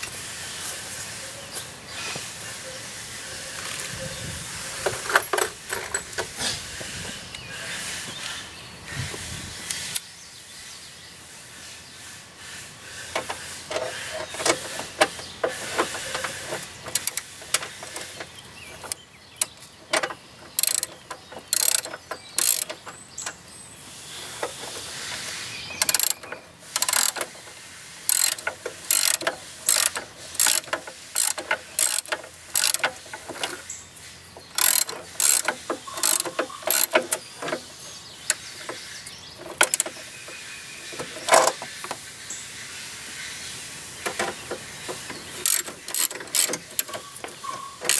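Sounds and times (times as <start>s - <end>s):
ratchet wrench clicking: 13.7s - 18.2s, 18.8s - 23.4s, 25.8s - 27.4s, 28.0s - 33.7s, 34.4s - 37.6s, 39.4s - 40.0s, 45.0s - 47.9s.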